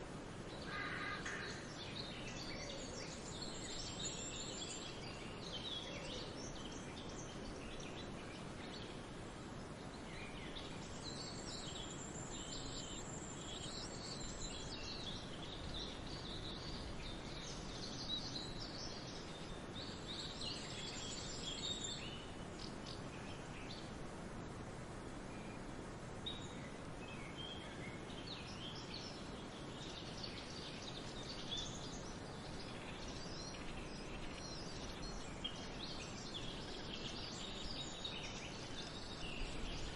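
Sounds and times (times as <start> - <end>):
small birds chirping and trilling: 0.0 - 24.2, 25.2 - 39.9
steady outdoor hiss: 0.0 - 39.9.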